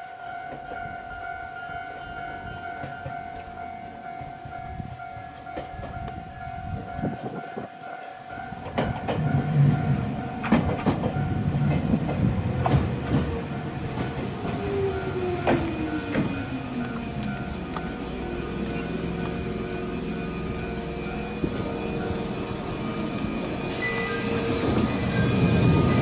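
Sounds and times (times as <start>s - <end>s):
level crossing warning tone: 0.0s - 26.0s
train whine falling in pitch: 0.0s - 26.0s
train wheels clacking over rail joints: 8.6s - 9.7s, 10.4s - 19.9s.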